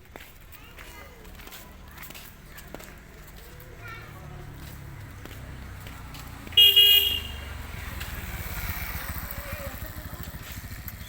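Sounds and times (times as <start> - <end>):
road traffic rumble: 0.0 - 11.0
vehicle horn honking: 6.6 - 7.6.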